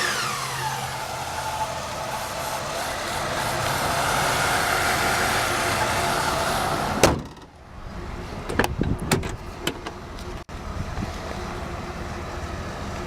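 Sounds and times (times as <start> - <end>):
engine bay noise: 0.0 - 13.0
car hood slamming shut: 7.0 - 7.5.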